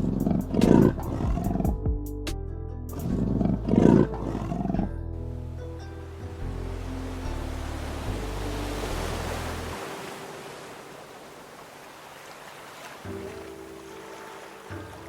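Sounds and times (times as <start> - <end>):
large animal roaring: 0.0 - 1.7, 3.0 - 4.9
background music: 0.0 - 10.9, 13.1 - 15.0.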